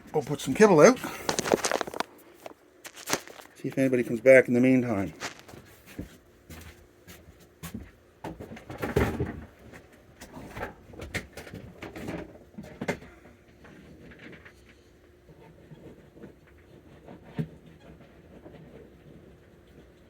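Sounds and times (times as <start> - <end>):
objects being handled: 0.6 - 3.6, 5.1 - 6.2
clattering rustle: 1.0 - 3.6, 5.1 - 6.1.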